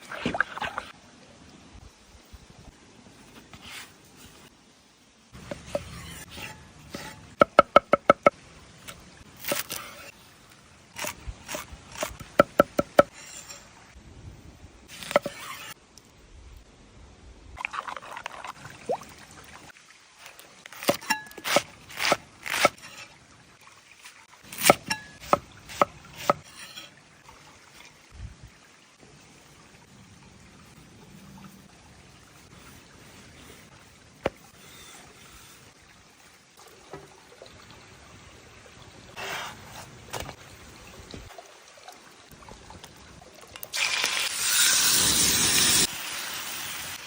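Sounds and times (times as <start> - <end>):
liquid sloshing: 17.6 - 19.7.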